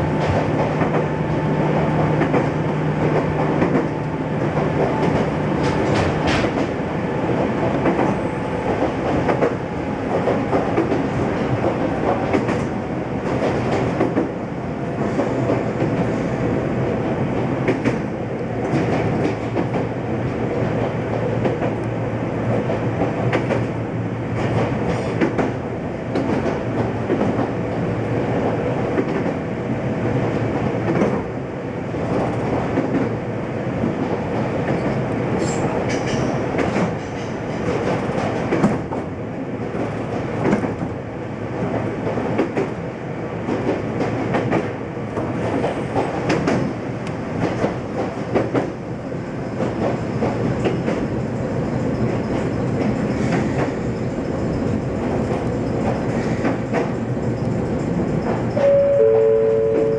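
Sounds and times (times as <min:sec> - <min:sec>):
train wheels rumbling on rail: 0:00.0 - 0:59.9
wheels clicking on rail joints: 0:33.9 - 0:39.1, 0:43.5 - 0:58.7.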